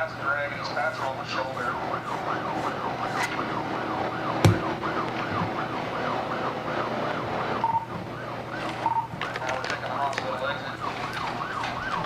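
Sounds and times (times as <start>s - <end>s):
police siren yelping: 0.2s - 12.0s
sharp knock: 4.4s - 4.9s.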